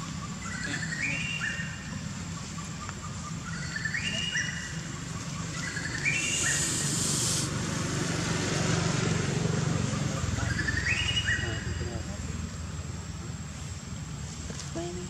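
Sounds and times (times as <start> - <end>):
steady low hum: 0.0 - 10.8
bird whistling song: 2.5 - 7.5, 10.5 - 11.7
high hiss: 5.9 - 8.1.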